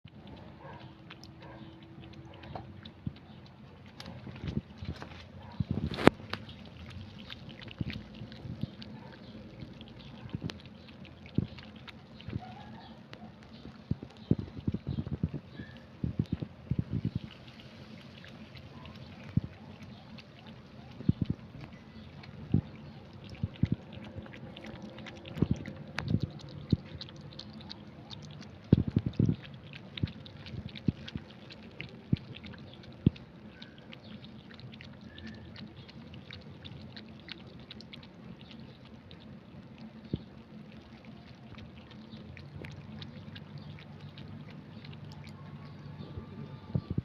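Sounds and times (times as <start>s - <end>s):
cat lapping liquid: 0.0s - 47.0s.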